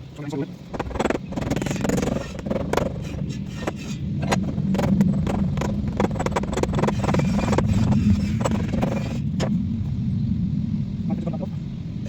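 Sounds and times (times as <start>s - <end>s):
low engine-like rumble: 0.0s - 12.0s
sharp clicks and knocks: 0.7s - 9.6s.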